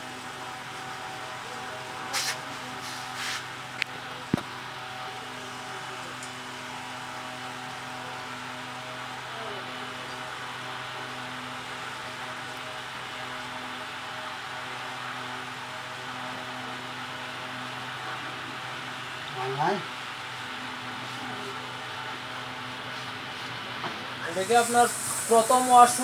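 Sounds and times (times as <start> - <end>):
steady mechanical hum: 0.0 - 26.0
short scraping hisses: 2.1 - 3.5.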